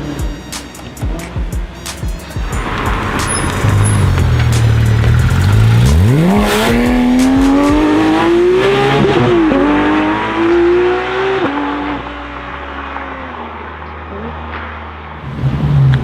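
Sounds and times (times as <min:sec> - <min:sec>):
car engine revving hard: 0:02.4 - 0:13.5.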